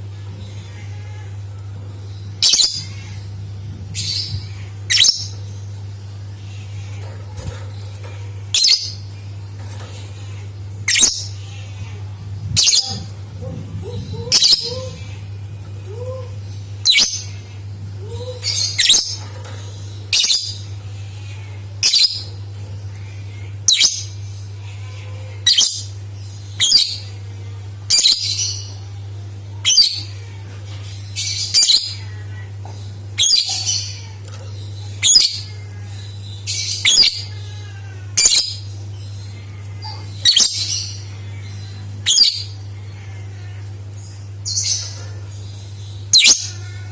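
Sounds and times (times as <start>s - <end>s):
low hum: 0.0s - 28.0s
bird shrill chirping: 46.1s - 46.6s.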